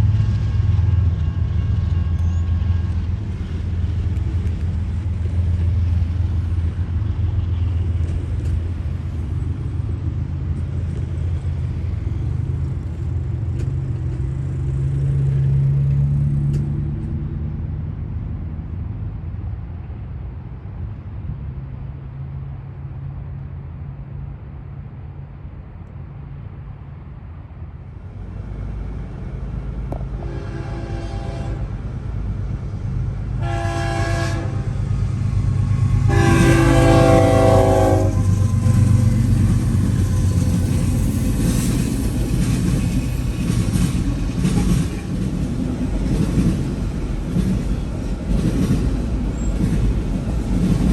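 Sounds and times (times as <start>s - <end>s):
diesel train rumbling past: 0.0s - 50.9s
train air horn blasts: 30.1s - 31.8s, 33.4s - 34.9s, 35.6s - 38.4s.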